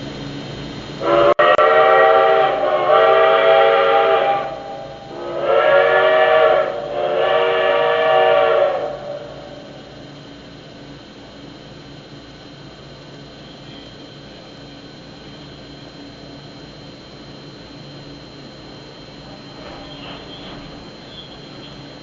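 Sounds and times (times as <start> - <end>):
steam locomotive chime whistle: 1.0 - 10.0, 19.3 - 22.0.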